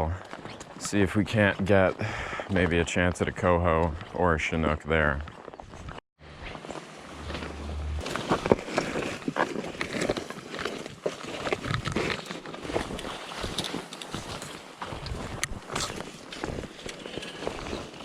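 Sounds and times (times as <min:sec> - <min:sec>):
footsteps crunching on trail: 0:00.1 - 0:18.0
brush rustling: 0:06.2 - 0:18.0.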